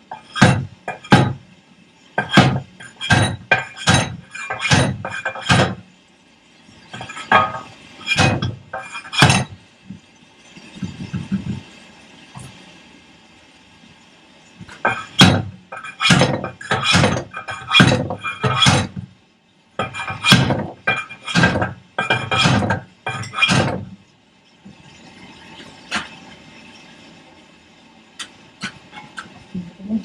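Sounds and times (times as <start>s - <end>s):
hammer clinking on steel: 2.2s - 5.8s, 14.8s - 19.0s, 19.8s - 23.8s.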